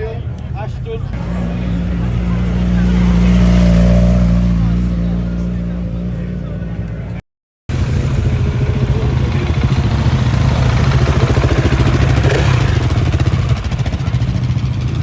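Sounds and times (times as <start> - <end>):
motorcycle engine running: 1.1 - 15.0.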